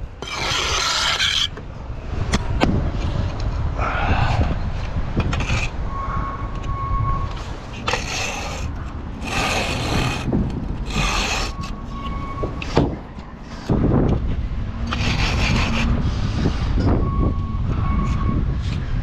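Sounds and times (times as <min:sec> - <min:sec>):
trowel scraping mortar: 0:00.2 - 0:01.6, 0:07.8 - 0:11.9
wind rumble on microphone: 0:01.6 - 0:19.0.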